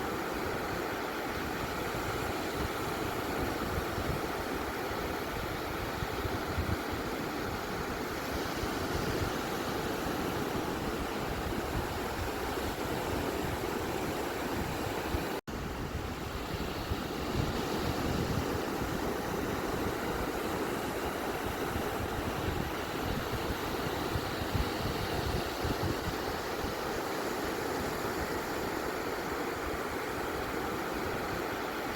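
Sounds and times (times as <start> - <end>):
ocean surf washing onto beach: 0.0 - 31.9.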